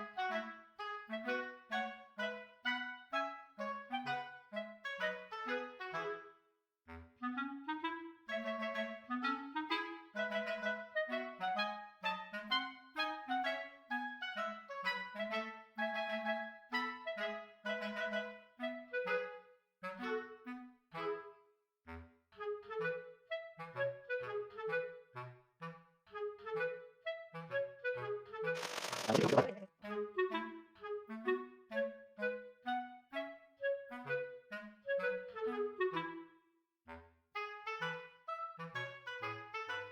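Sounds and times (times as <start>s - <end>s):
woodwind tune: 0.0s - 39.9s.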